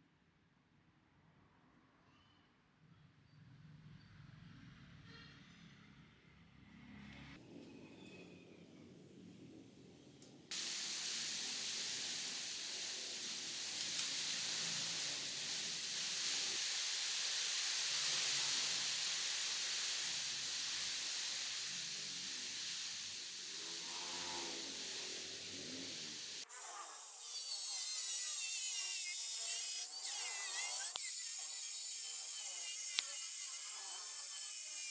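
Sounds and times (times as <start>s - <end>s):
angle grinder cutting metal: 23.6s - 34.9s.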